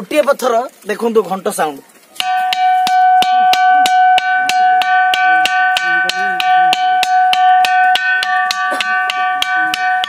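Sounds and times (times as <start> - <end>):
rock struck with bell-like ring: 2.2 - 10.0.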